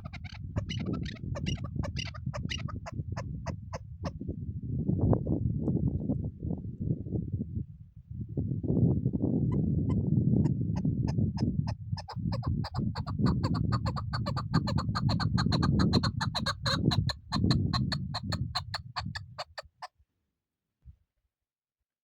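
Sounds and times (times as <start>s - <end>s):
partridge clucking calls: 0.0s - 3.8s, 11.4s - 19.9s.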